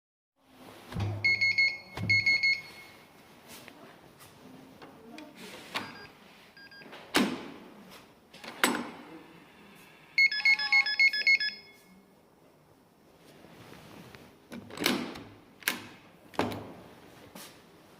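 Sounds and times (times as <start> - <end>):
electronic lock tones: 1.1 - 3.0, 5.8 - 7.0
electronic beeps: 1.2 - 3.0, 5.8 - 6.9, 10.2 - 12.0
door and latch clunking: 14.5 - 16.8.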